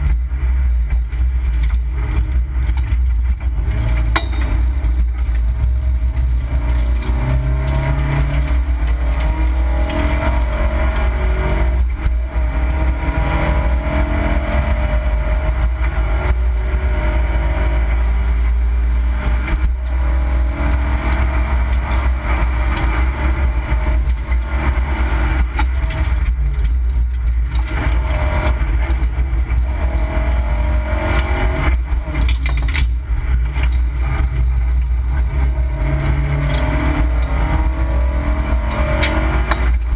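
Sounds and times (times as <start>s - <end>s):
low rumble: 0.0s - 39.9s
rally car engine revving: 0.0s - 39.9s.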